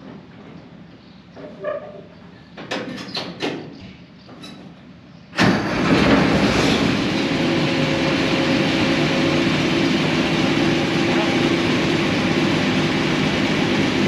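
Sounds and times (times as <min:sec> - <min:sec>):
diesel engine starting and running: 0:05.3 - 0:14.0.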